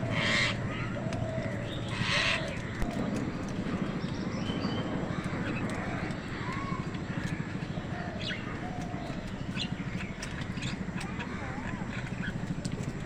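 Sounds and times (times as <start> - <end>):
crows cawing: 0.0 - 2.7
distant voices murmuring: 0.0 - 13.0.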